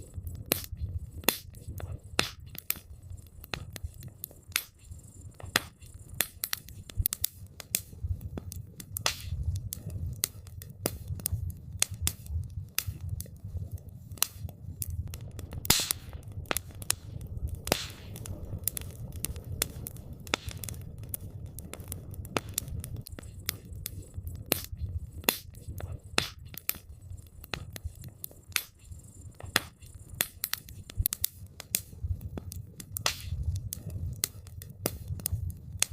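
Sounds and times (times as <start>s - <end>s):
campfire crackling and popping: 0.0s - 35.9s.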